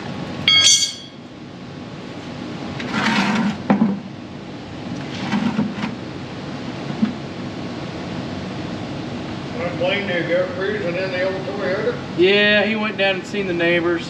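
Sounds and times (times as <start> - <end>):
steady background hum: 0.0 - 14.0
metal tools scraping and sliding: 0.5 - 1.2
sharp knocks of metal tools: 0.5 - 1.2.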